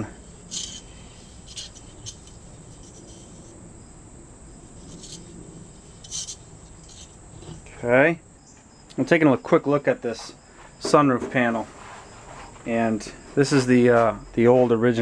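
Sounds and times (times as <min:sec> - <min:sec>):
hand rubbing grease in metal track: 0:00.0 - 0:03.6, 0:04.6 - 0:07.6
crickets chirping: 0:00.0 - 0:15.0.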